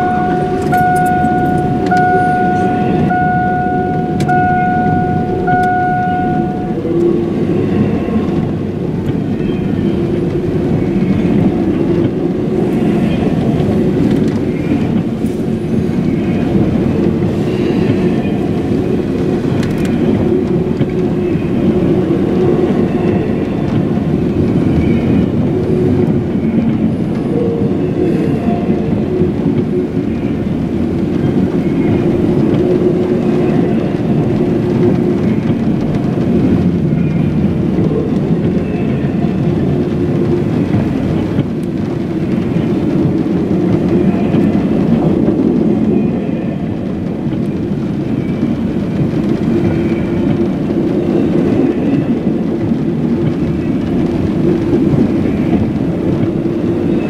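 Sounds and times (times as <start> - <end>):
steady tone: 0.0 - 8.4
train wheels rumbling: 0.0 - 57.0.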